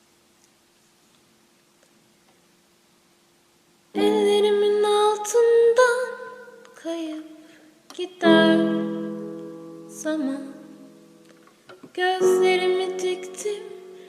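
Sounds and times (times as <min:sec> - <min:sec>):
woman singing: 0:04.0 - 0:11.0, 0:11.9 - 0:14.0.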